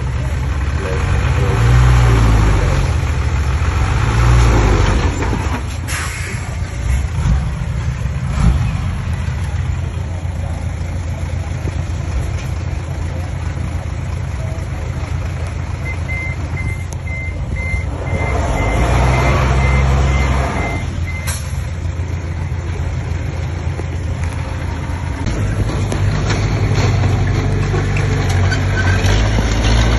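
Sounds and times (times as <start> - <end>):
heavy machinery diesel engine: 0.0 - 29.9
reversing alarm beeping: 15.8 - 21.6.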